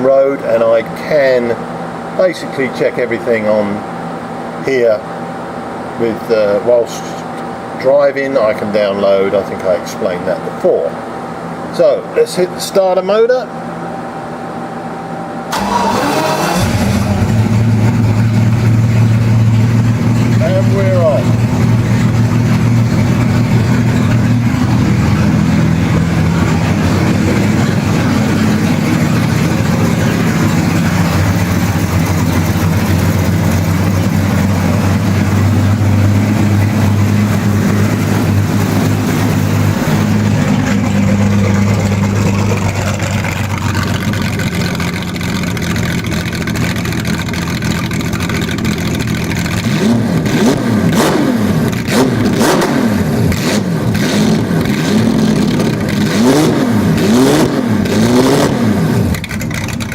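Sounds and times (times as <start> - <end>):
race car engine running: 15.5 - 59.9.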